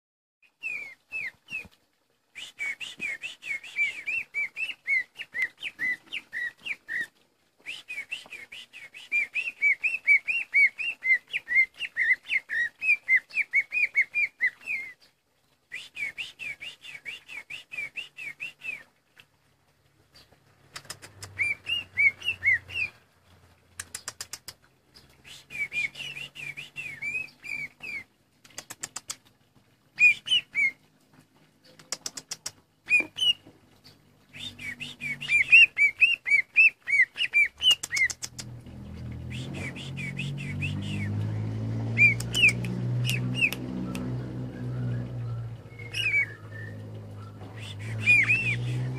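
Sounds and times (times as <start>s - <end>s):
bird singing whistled chirps: 21.4s - 23.0s, 25.2s - 28.0s, 30.0s - 30.8s, 34.3s - 38.1s, 39.3s - 41.2s, 42.0s - 48.9s.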